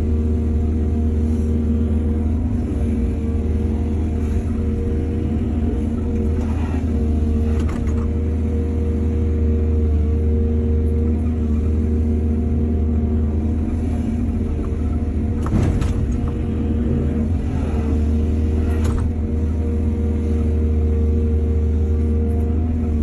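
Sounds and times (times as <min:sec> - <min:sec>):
excavator engine drone: 0:00.0 - 0:23.0.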